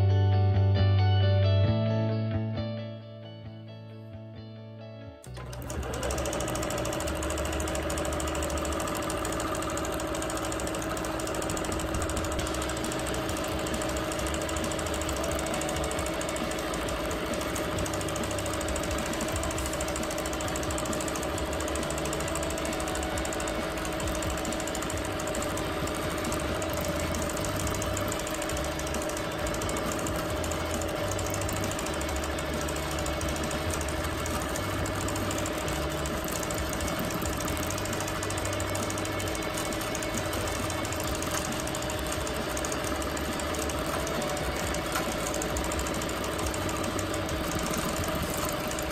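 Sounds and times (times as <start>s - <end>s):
guitar intro: 0.0s - 7.8s
motor hum: 5.2s - 48.9s
quilting machine needle chatter: 5.2s - 48.9s.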